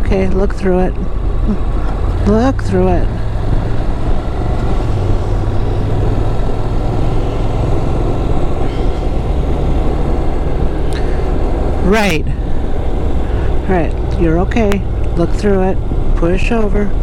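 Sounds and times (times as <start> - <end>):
motorcycle engine drone: 0.0 - 17.0
wind hiss: 3.0 - 14.1.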